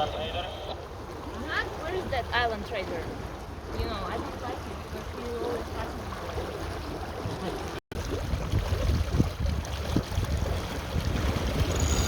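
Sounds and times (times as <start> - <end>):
water washing along a hull: 0.0 - 12.0
wind rumbling on microphone: 8.0 - 12.0.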